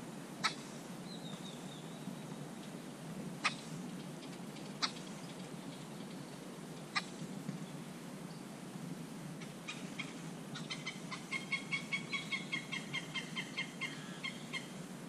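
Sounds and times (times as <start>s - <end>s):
bird calling repeated notes: 9.7s - 14.7s.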